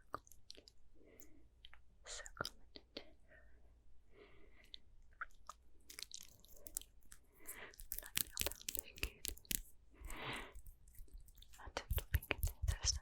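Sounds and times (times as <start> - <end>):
soft breathing: 3.0 - 4.9, 6.4 - 13.0
mouth clicks and smacks: 4.7 - 13.0.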